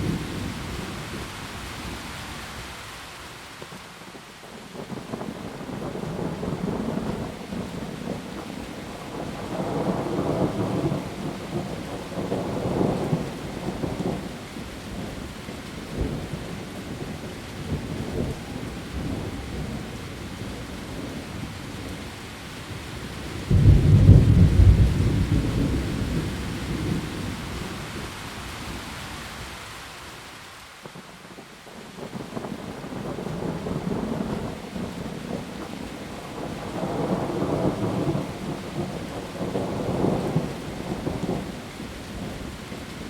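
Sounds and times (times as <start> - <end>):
heavy rain on leaves: 0.0 - 43.0
thunder rumbling: 4.9 - 15.2, 23.2 - 28.8, 32.0 - 42.5
loud thunderclap: 23.5 - 27.3.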